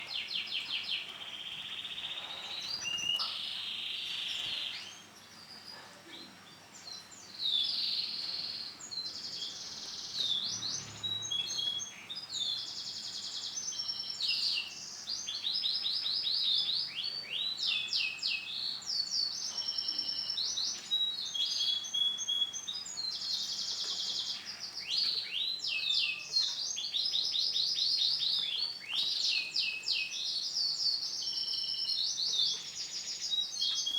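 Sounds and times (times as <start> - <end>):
canary singing trills: 7.4 - 33.9.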